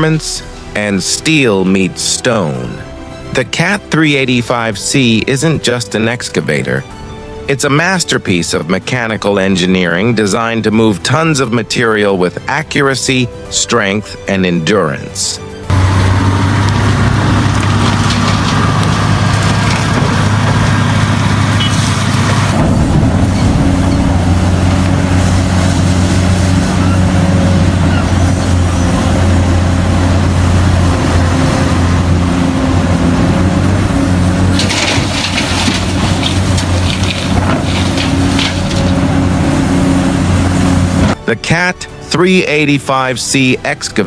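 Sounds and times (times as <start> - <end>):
diesel excavator engine droning: 0.0 - 43.8
rock and dirt crashing: 15.7 - 41.2.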